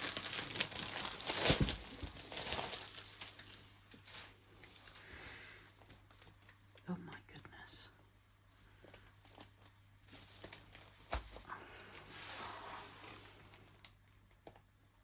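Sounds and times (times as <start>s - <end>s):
plastic cover rustling: 0.0s - 6.6s, 8.8s - 14.0s.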